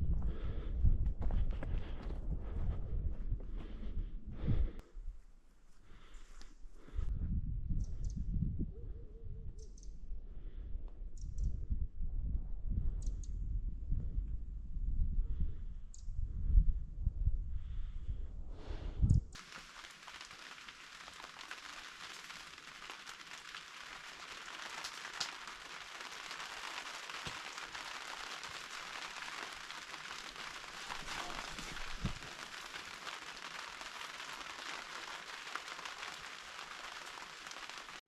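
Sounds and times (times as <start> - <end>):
heavy rain pattering: 19.4 - 38.0.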